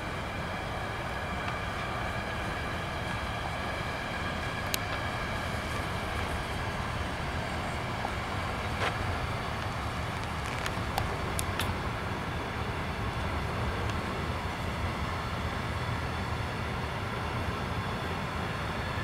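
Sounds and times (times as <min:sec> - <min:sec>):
freight train rolling past: 0:00.0 - 0:19.0.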